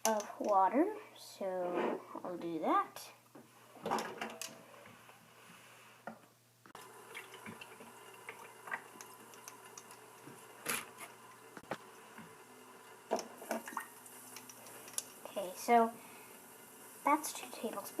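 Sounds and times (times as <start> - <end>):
water dripping and trickling: 6.8 - 10.5, 12.8 - 15.8.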